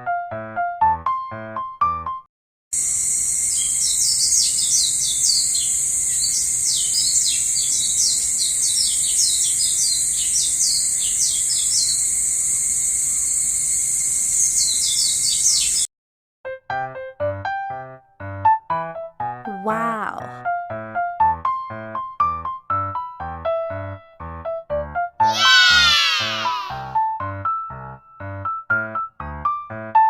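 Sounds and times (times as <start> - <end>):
high-pitched insect drone: 2.8 - 15.8, 25.3 - 26.8
birds chirping: 3.5 - 12.1, 14.4 - 15.9, 25.3 - 26.7.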